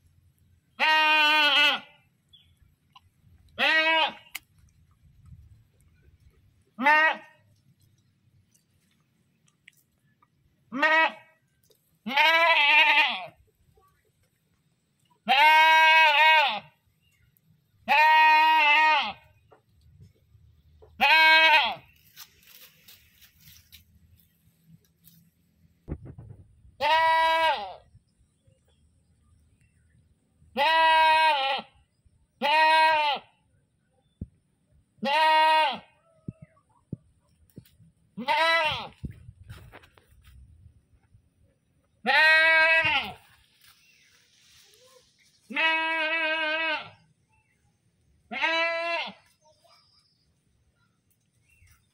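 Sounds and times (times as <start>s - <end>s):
goat bleating: 0.7s - 2.0s, 3.6s - 4.4s, 6.8s - 7.4s, 10.7s - 11.4s, 12.0s - 13.4s, 15.2s - 16.8s, 17.8s - 19.4s, 20.9s - 22.1s, 26.8s - 27.8s, 30.5s - 31.7s, 32.4s - 33.4s, 35.0s - 36.0s, 38.2s - 39.0s, 42.0s - 43.4s, 45.4s - 47.0s, 48.3s - 49.4s.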